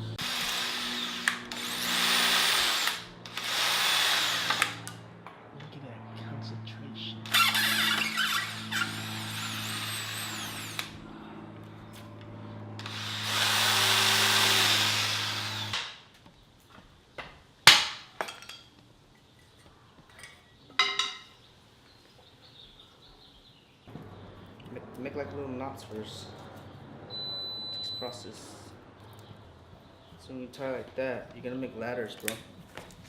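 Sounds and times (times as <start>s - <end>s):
power drill motor hum: 0.0s - 5.0s, 7.2s - 11.0s, 12.8s - 15.9s.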